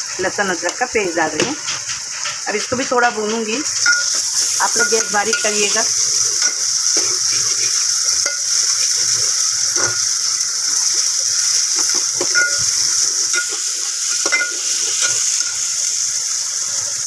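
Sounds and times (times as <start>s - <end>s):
onions sizzling in hot oil: 0.0s - 17.0s
ladle scraping and knocking pot: 1.3s - 5.6s.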